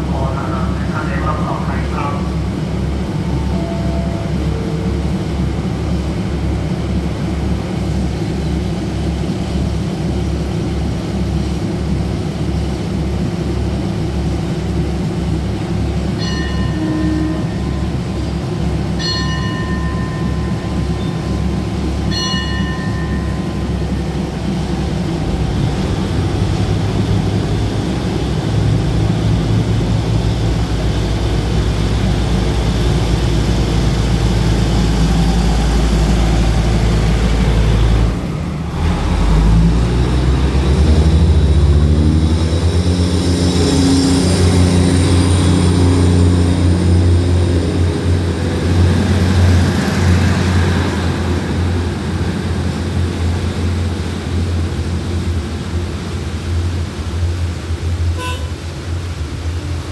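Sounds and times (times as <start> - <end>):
short high tone: 3.2 - 5.3, 16.2 - 18.3, 58.2 - 58.7.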